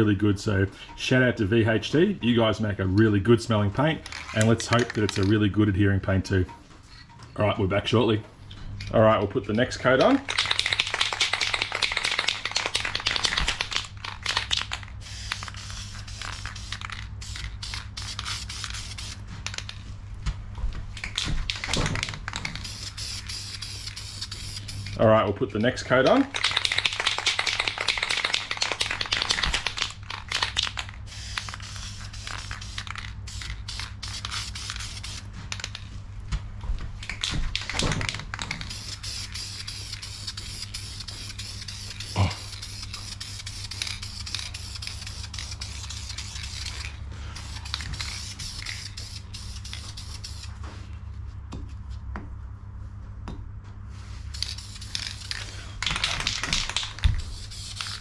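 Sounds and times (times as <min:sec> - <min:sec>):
steady low hum: 0:00.0 - 0:58.0
aerosol can spraying: 0:10.0 - 0:19.2, 0:21.5 - 0:25.0, 0:26.3 - 0:35.3, 0:38.6 - 0:50.5, 0:54.3 - 0:58.0.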